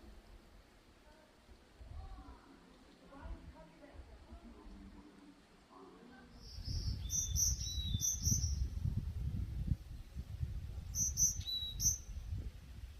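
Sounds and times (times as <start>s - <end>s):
small bird chirping: 6.4s - 8.9s, 10.8s - 12.3s
wind on microphone: 6.4s - 12.9s.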